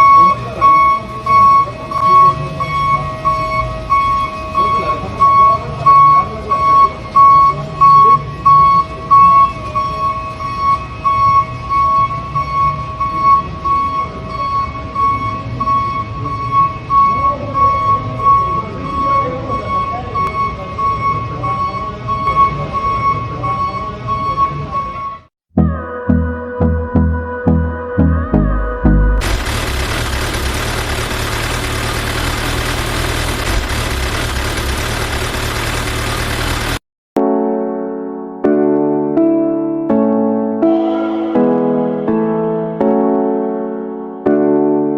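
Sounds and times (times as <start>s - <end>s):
high electronic beeping: 29.2s - 36.8s
vehicle engine idling: 29.2s - 36.8s.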